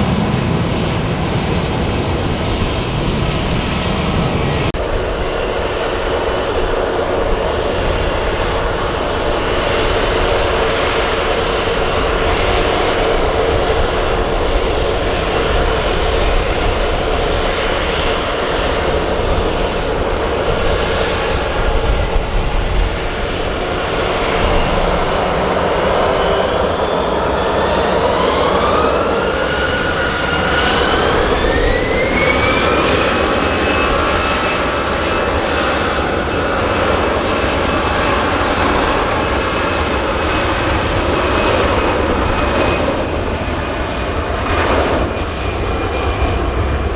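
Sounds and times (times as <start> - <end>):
wind rumble on microphone: 0.0 - 35.1
jet engines spooling up: 1.0 - 33.0.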